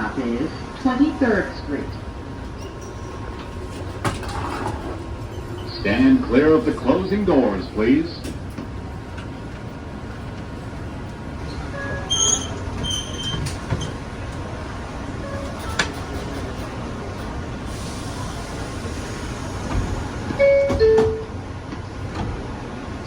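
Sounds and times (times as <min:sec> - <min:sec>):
subway car running noise: 0:00.0 - 0:23.0.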